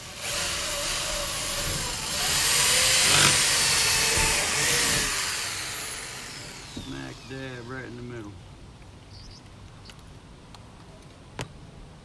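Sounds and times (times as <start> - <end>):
electric drill boring wood: 0.0 - 7.8.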